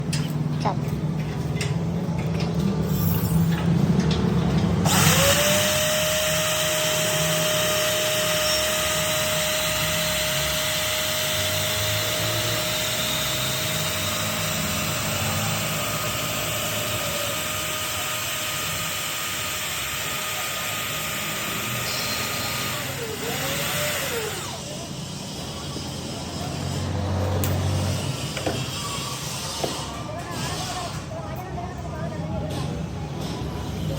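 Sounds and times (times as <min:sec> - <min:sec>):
electric drill motor whine: 0:04.8 - 0:24.9.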